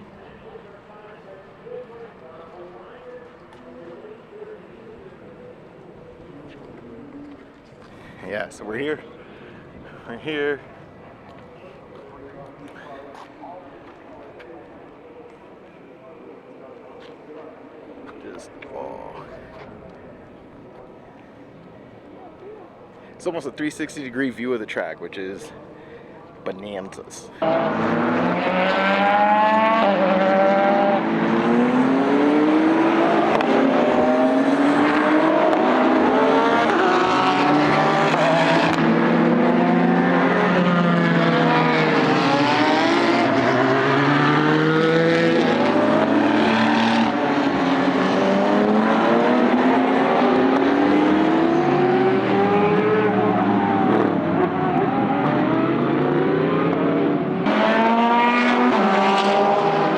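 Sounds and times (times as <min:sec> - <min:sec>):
race car engines shifting gears: 0:27.4 - 0:59.9.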